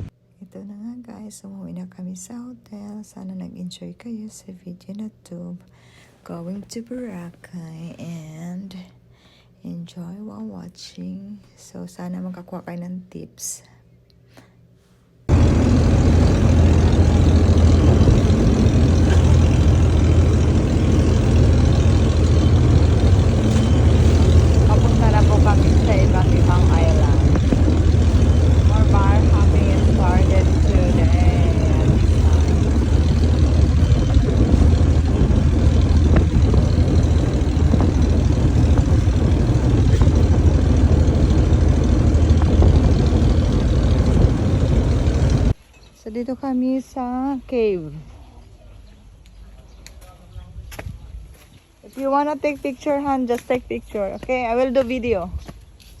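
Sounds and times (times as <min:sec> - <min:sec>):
motorboat engine droning: 0:15.3 - 0:45.6.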